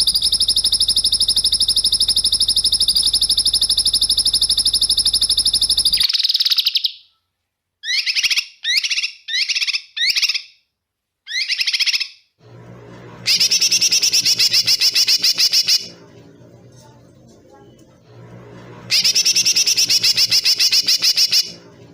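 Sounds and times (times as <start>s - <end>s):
faint low hum: 0.0s - 6.1s, 12.4s - 21.9s
songbird rapid trills: 18.9s - 21.6s.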